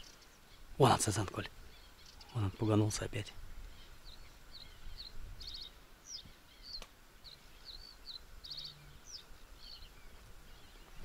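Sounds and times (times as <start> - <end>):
small birds chirping faintly: 0.0 - 11.0.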